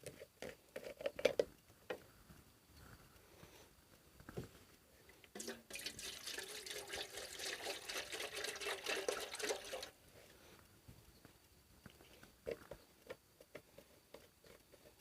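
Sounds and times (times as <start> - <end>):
liquid pouring into container: 5.4 - 10.0.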